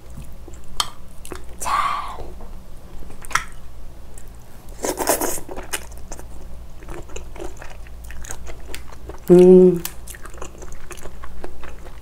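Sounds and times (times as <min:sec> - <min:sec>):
mouth chewing with wet clicks: 0:00.1 - 0:01.6, 0:05.0 - 0:12.0.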